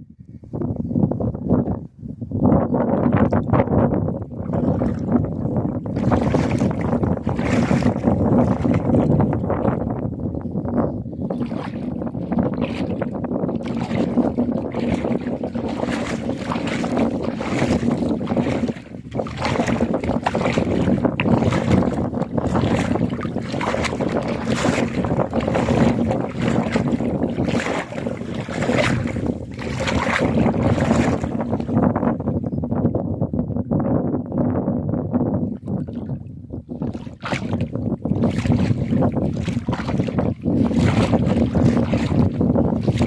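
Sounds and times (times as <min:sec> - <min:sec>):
gusty wind buffeting microphone: 0:00.0 - 0:43.0.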